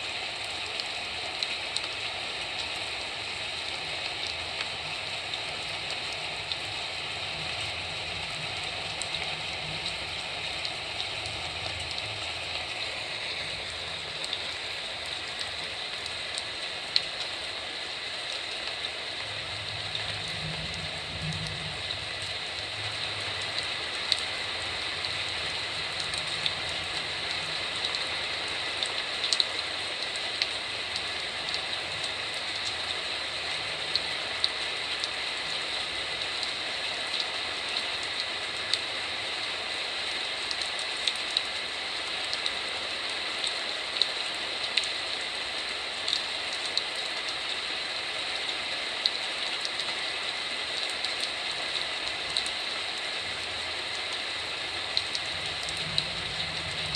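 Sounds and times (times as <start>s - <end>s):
heavy rain hiss: 0.0s - 56.9s
raindrops tapping hard surface: 54.8s - 56.9s.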